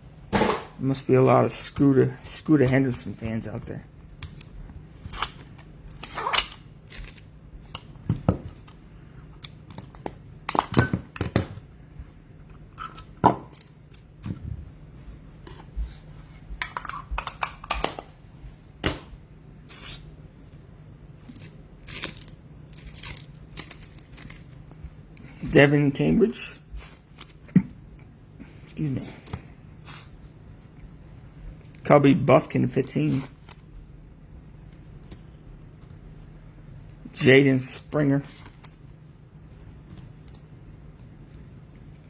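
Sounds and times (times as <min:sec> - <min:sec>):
card wrappers crinkling: 0:06.8 - 0:07.3, 0:21.3 - 0:24.8.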